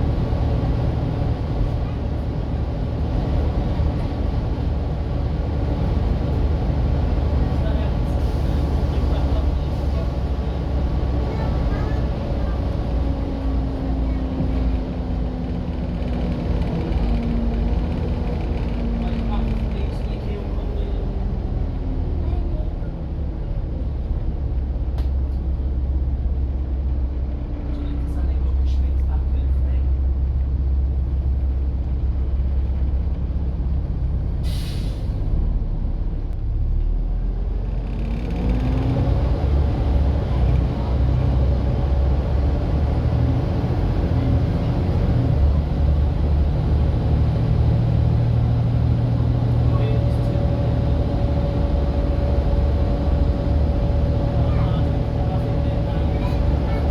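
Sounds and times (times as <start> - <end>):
whine of bus pulling away: 0.0 - 29.1, 31.1 - 56.9
bus diesel engine rumbling: 0.0 - 56.9
brake air hiss: 34.4 - 35.3.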